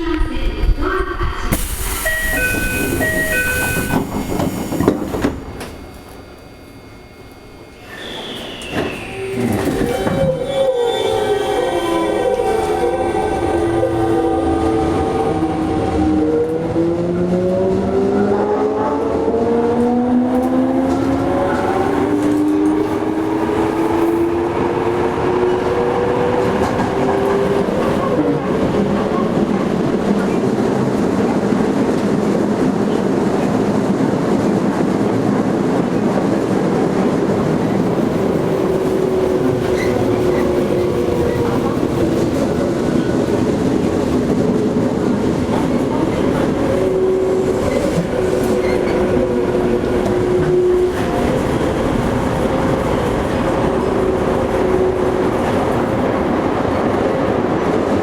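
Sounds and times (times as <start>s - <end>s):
wheels on rail running noise: 1.5s - 10.4s, 19.4s - 58.0s
electric train motor whine: 1.6s - 9.9s.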